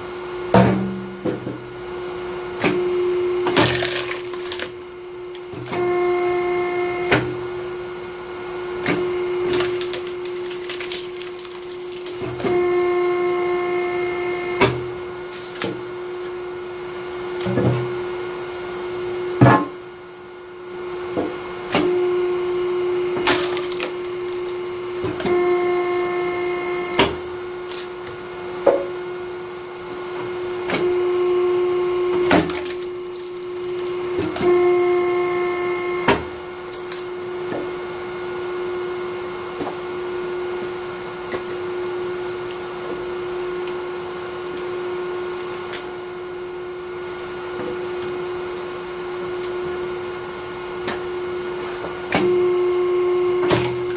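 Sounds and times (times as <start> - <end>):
hydraulic log splitter humming: 0.0 - 53.9
logs cracking as they split: 3.5 - 5.7, 9.4 - 12.5, 23.2 - 25.1, 32.3 - 34.3.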